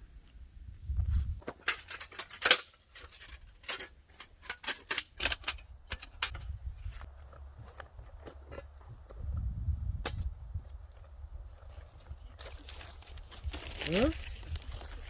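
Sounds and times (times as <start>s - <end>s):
sharp clicks and small knocks: 1.4s - 11.1s.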